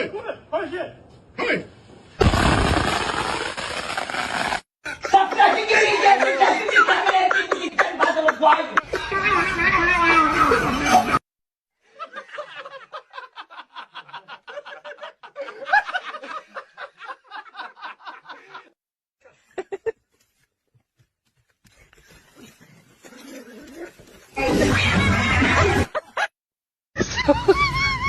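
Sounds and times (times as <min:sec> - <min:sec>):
rapid laughter-like snickering: 0:22.1 - 0:26.3.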